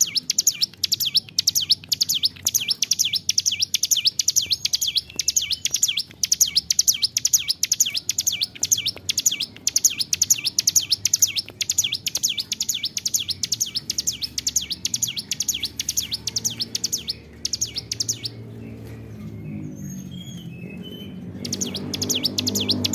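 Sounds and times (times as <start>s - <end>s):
bird singing sharp high notes: 0.0s - 22.9s
faint bird chirps: 0.0s - 22.9s.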